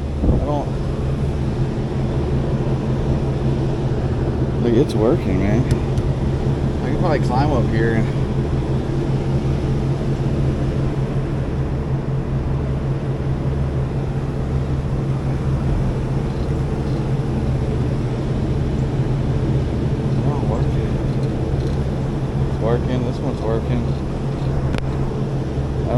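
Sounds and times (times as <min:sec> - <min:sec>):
fan air rushing: 0:00.0 - 0:25.9
hvac units humming: 0:00.0 - 0:25.9.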